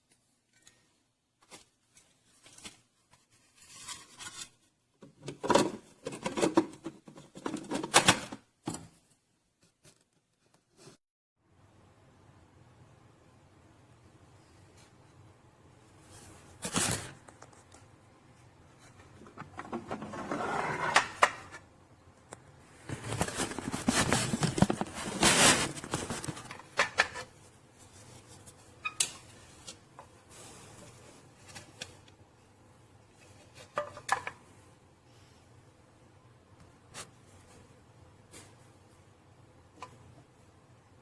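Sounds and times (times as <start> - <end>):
rustling: 22.7 - 32.0.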